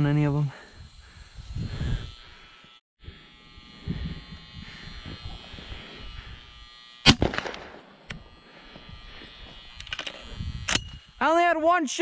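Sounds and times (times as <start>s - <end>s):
shotgun shot: 7.0s - 8.0s
sharp click: 9.8s - 11.0s.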